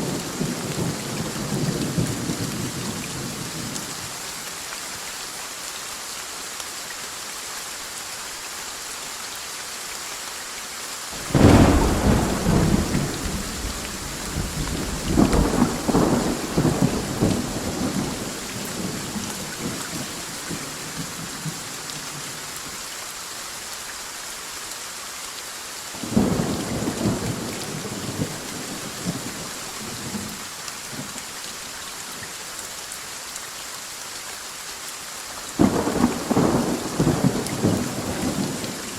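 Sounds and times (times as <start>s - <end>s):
heavy rain: 0.0s - 38.9s
thunder cracking and rumbling: 11.2s - 20.6s.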